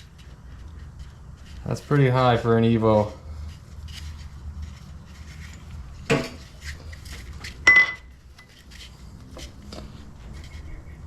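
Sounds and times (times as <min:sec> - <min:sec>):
metal tools clinking on workbench: 0:07.6 - 0:08.1.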